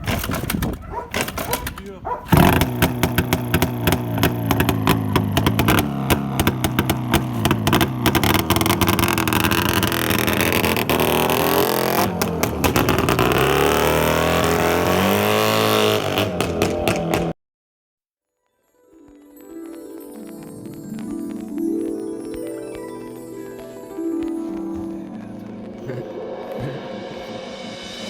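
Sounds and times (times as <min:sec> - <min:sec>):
motorcycle engine revving: 0:00.0 - 0:17.4.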